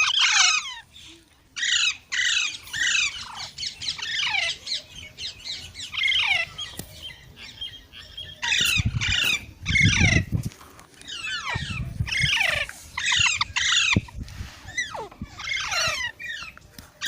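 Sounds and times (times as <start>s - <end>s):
parrot squawking: 0.0s - 0.8s, 11.1s - 14.1s, 14.7s - 16.4s.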